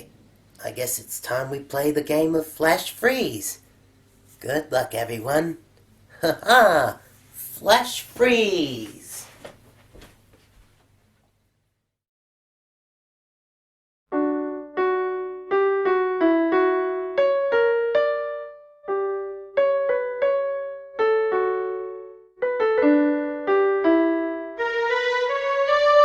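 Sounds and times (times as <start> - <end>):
electric piano melody: 14.1 - 26.0.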